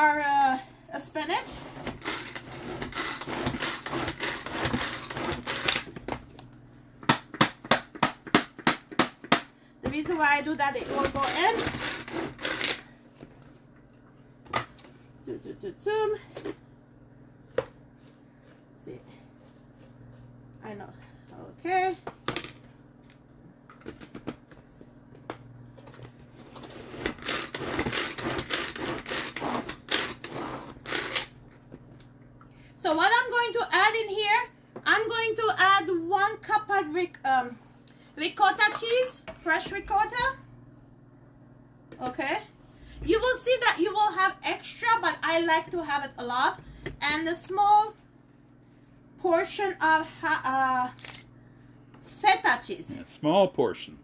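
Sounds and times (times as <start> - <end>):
utensils scraping and rustling food: 1.2 - 5.9, 10.5 - 12.9, 25.8 - 31.4.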